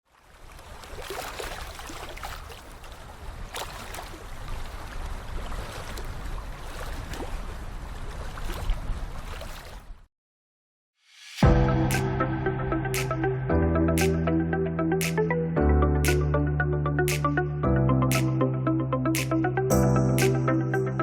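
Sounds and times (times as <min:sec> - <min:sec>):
sea water lapping on shore: 0:00.1 - 0:10.1.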